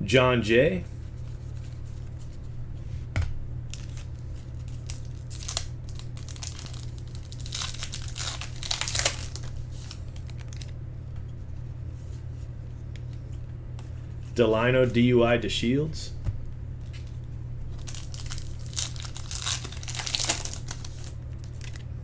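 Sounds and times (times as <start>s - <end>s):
steady low hum: 0.0s - 22.0s
card pack wrapper tearing and crinkling: 3.7s - 10.8s, 17.7s - 22.0s.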